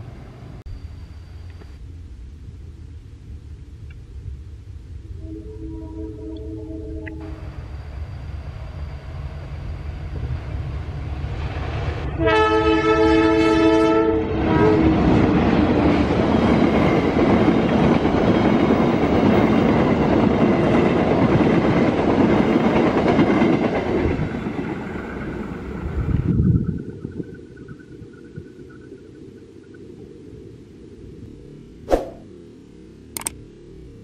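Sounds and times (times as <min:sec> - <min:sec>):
train horn blast: 0:05.2 - 0:07.3, 0:12.1 - 0:15.0.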